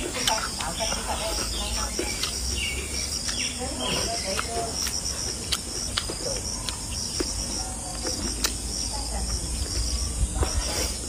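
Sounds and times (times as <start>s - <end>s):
insects trilling: 0.0s - 11.0s
person chewing food: 0.0s - 11.0s
sharp mouth clicks: 0.2s - 8.6s.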